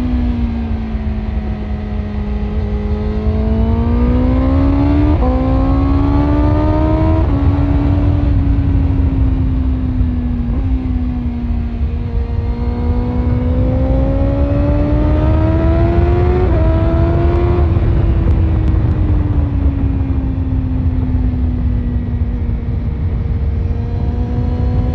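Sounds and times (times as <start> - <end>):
motorcycle engine revving up: 0.0 - 8.5, 11.7 - 19.0
wind rumble: 0.0 - 24.9.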